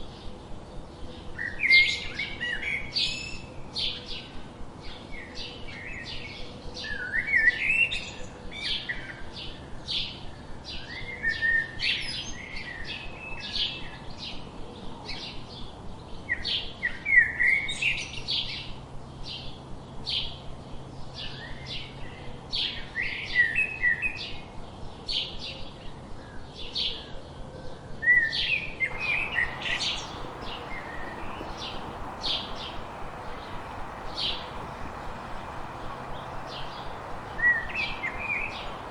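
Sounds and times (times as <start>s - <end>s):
small birds chirping: 28.9s - 38.9s
steady hiss: 28.9s - 38.9s.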